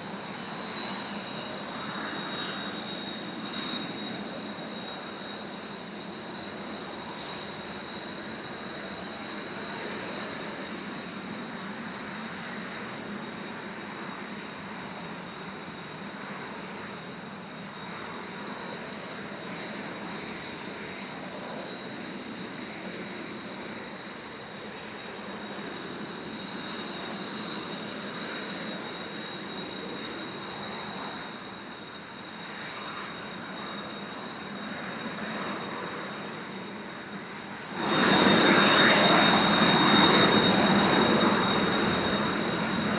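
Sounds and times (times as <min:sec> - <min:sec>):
jet engines whining: 0:00.0 - 0:42.9.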